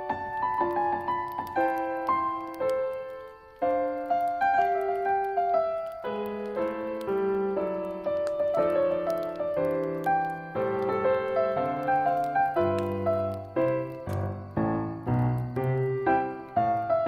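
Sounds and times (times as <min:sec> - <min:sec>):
campfire crackling: 0:00.0 - 0:17.0
solo piano melody: 0:00.0 - 0:17.0.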